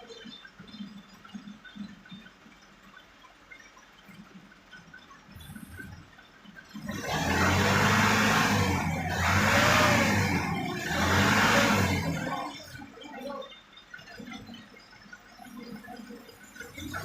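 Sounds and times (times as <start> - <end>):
engine revving: 6.8 - 12.8.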